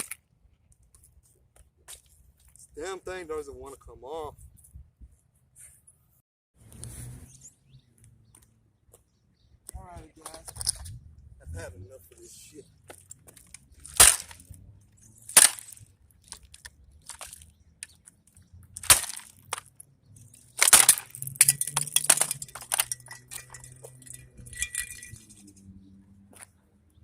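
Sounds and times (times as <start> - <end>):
cracking plastic and falling pieces: 13.0 - 14.5, 15.3 - 18.0, 18.8 - 19.8, 20.4 - 25.4
plastic housing slammed on concrete: 13.9 - 14.3, 15.4 - 15.8, 18.8 - 19.6, 20.6 - 25.2.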